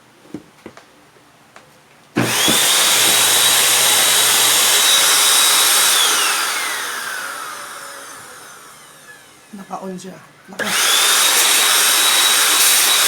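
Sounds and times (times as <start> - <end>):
vacuum cleaner motor whining: 2.2 - 9.8, 10.6 - 13.0.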